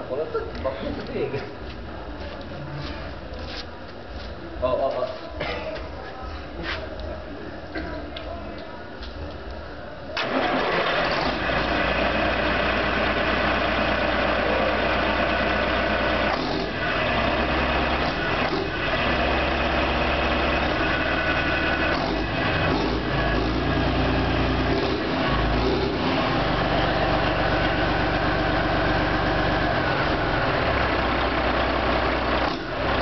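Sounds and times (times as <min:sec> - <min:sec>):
diesel engine idling: 0:10.2 - 0:33.0.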